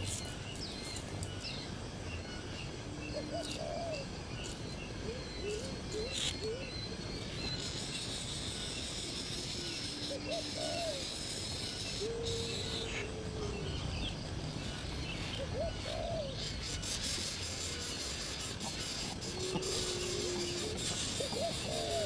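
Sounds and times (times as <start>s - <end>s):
steady insect hiss: 0.0s - 22.0s
bird giving low calls: 8.2s - 22.0s.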